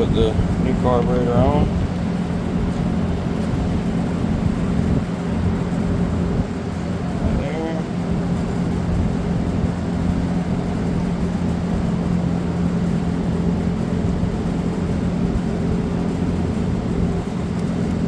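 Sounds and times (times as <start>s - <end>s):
rumbling noise: 0.0s - 12.8s
low background hum: 0.0s - 18.0s.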